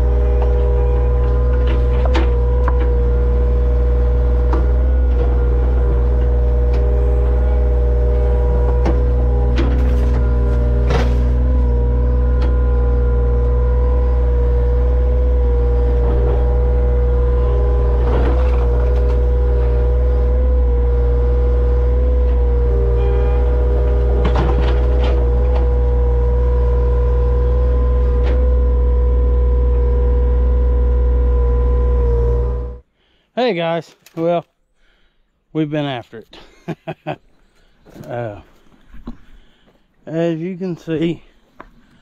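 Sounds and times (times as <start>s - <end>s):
knocks and clanks: 0.0s - 28.9s
excavator diesel engine drone: 0.0s - 32.9s.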